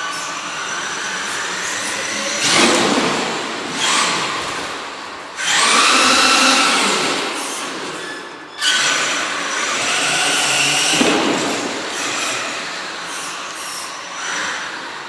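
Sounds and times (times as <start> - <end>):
electric motor whining: 0.0 - 8.0.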